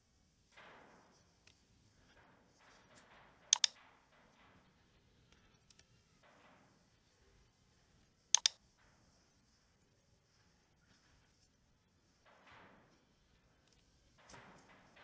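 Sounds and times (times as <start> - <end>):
mouse button double-clicking: 8.4 - 8.6.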